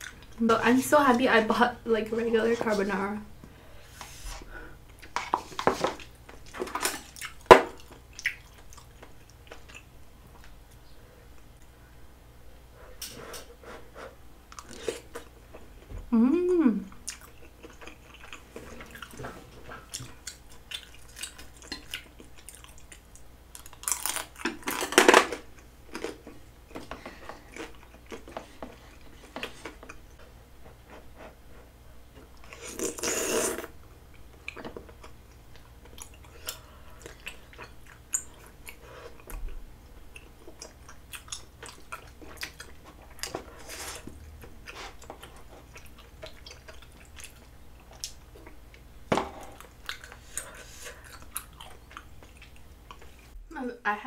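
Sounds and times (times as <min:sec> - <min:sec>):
chewing chewy food: 0:04.9 - 0:11.7, 0:16.9 - 0:30.3, 0:32.2 - 0:53.4.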